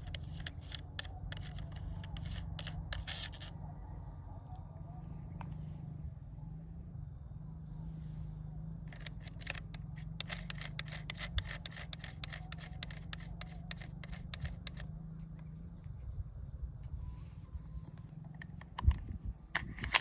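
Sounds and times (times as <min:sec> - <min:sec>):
rapid mechanical clicks: 0:00.0 - 0:03.5, 0:08.9 - 0:14.8, 0:18.3 - 0:20.0
wind rumble on microphone: 0:15.4 - 0:20.0.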